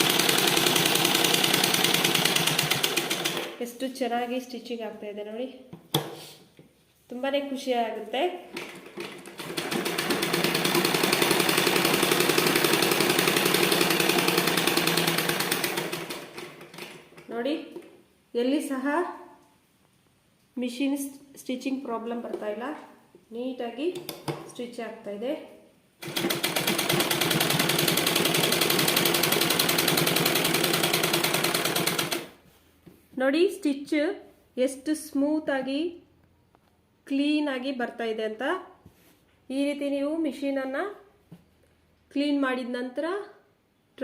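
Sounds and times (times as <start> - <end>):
sewing machine stitching: 0.0 - 3.6, 8.5 - 17.3, 26.0 - 32.4.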